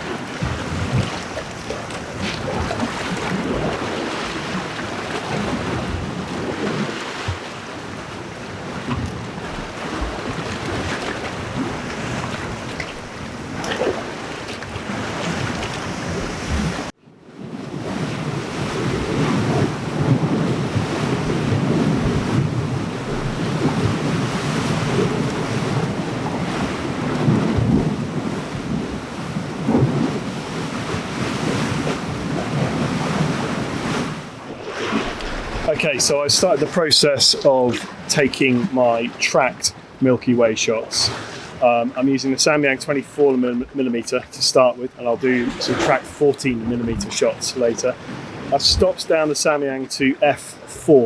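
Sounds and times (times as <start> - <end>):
wind buffeting microphone: 0.0 - 16.9, 17.5 - 37.1
surf on rocky shore: 0.0 - 51.0.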